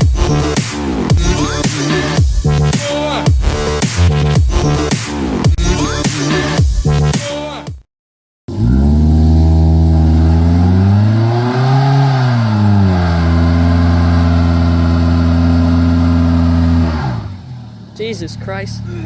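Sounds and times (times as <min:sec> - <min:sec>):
car engine running: 0:08.5 - 0:19.0.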